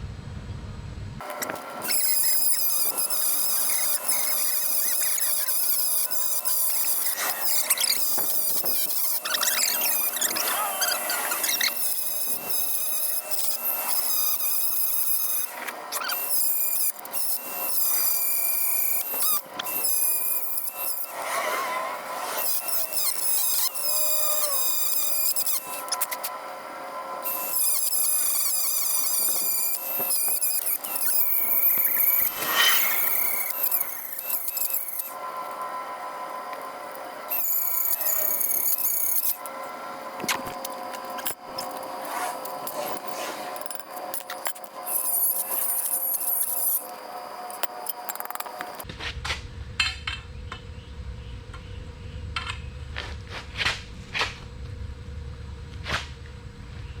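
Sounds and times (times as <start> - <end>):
rotary tool whining: 1.2 - 48.9
shrill cutting sound: 1.8 - 26.4, 27.2 - 36.0.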